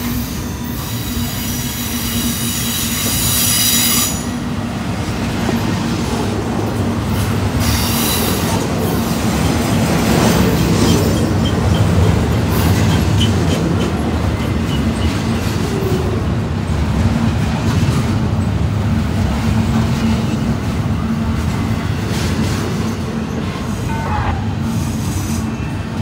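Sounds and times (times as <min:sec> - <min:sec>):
clickety-clack of rail joints: 0:00.0 - 0:26.0
train wheels rumbling on rails: 0:00.0 - 0:26.0.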